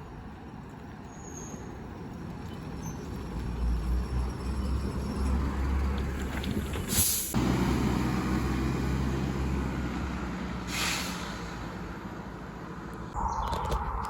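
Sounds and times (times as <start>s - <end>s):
compressed air hiss: 10.7s - 11.6s.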